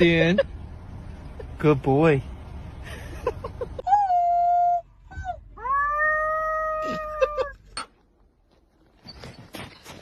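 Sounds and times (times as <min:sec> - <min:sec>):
dog yelping: 0:03.9 - 0:07.6.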